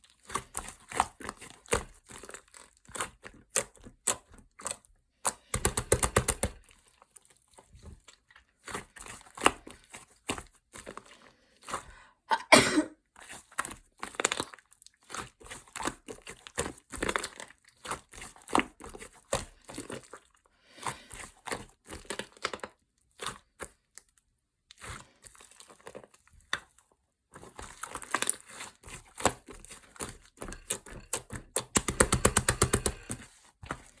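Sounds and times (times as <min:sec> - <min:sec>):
bread crust crackling and tearing: 0:00.0 - 0:05.6, 0:13.1 - 0:34.0.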